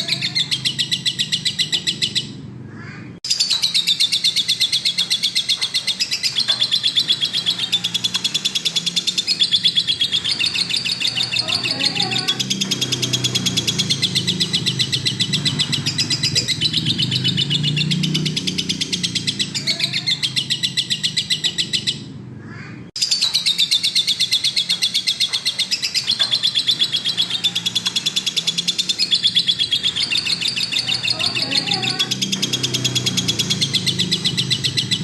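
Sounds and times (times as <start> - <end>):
lovebird chattering trill: 0.0 - 2.4, 3.3 - 35.0.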